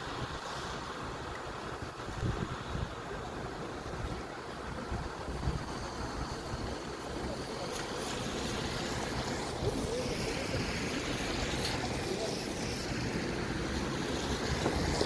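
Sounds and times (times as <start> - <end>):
city traffic road noise: 3.2 - 15.0.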